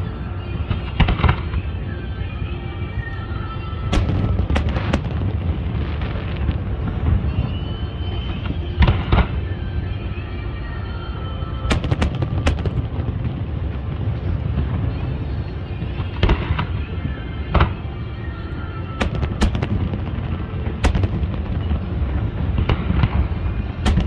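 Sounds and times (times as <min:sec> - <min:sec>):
music: 0:00.0 - 0:24.0
low rumble: 0:03.8 - 0:07.4, 0:11.7 - 0:15.2, 0:19.0 - 0:24.0
fireworks bangs and booms: 0:03.9 - 0:06.6, 0:11.7 - 0:13.9, 0:19.0 - 0:24.0.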